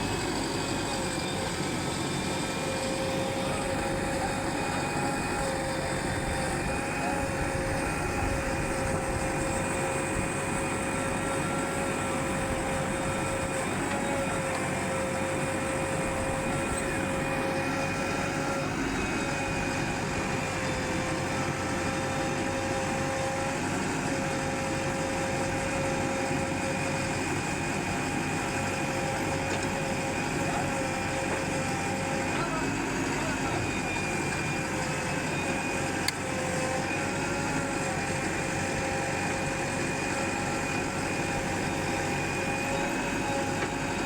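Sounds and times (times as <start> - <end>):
heavy machine engine running: 0.0 - 44.0.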